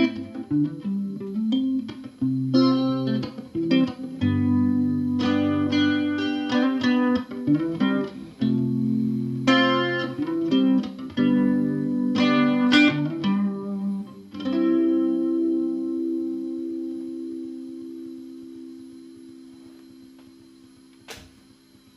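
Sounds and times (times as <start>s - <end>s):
solo guitar chords: 0.0s - 21.0s.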